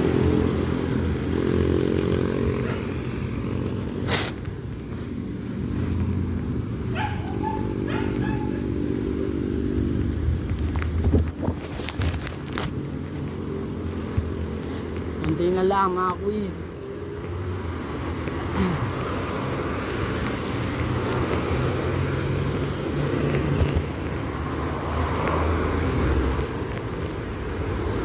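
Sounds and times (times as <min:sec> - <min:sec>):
motor traffic drone: 0:00.0 - 0:28.0
dog barking and yelping: 0:02.6 - 0:03.0, 0:06.8 - 0:08.9.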